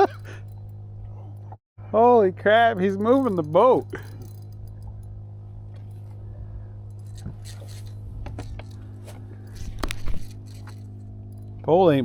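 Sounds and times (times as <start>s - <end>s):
low motor hum: 0.0s - 12.0s
fishing reel clicks and knocks: 2.5s - 5.1s, 6.9s - 11.6s.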